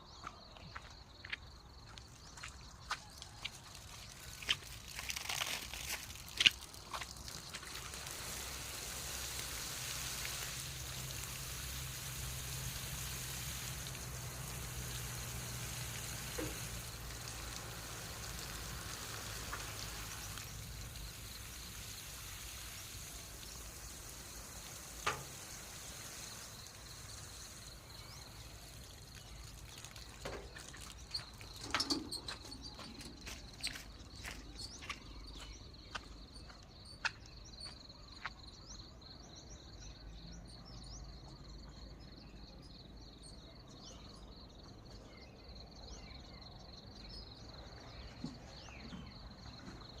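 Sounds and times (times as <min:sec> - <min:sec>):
water spraying onto plants: 0:01.9 - 0:37.2
insect drone: 0:03.4 - 0:50.0.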